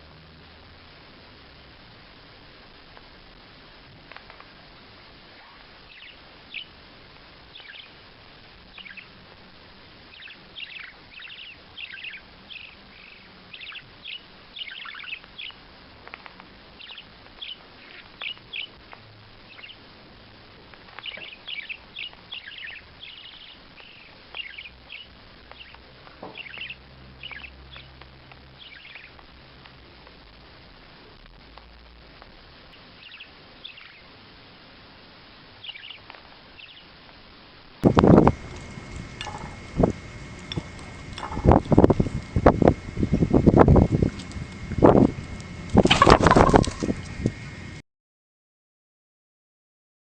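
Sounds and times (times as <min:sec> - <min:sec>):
bird chirping: 0:05.4 - 0:06.8, 0:07.5 - 0:08.0, 0:08.7 - 0:09.1, 0:10.1 - 0:15.6, 0:16.8 - 0:18.8, 0:19.5 - 0:19.8, 0:20.9 - 0:28.0, 0:28.6 - 0:29.2, 0:33.0 - 0:34.1, 0:35.6 - 0:36.9, 0:37.8 - 0:47.8.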